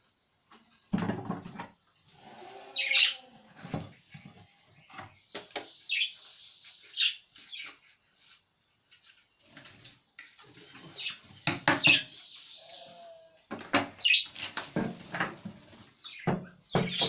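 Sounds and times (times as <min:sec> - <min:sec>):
budgerigars chirping: 0:02.8 - 0:03.2, 0:05.6 - 0:07.7, 0:11.0 - 0:13.0, 0:14.0 - 0:14.3.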